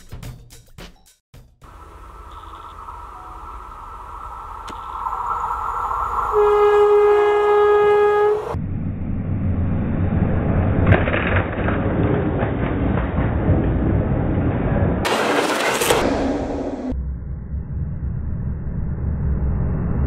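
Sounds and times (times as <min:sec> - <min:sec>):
train rumbling past: 0:01.7 - 0:20.0
sharp crack: 0:04.2 - 0:07.0, 0:10.4 - 0:17.0
train horn long blast: 0:06.3 - 0:08.6
wheels clacking over objects: 0:10.8 - 0:16.0.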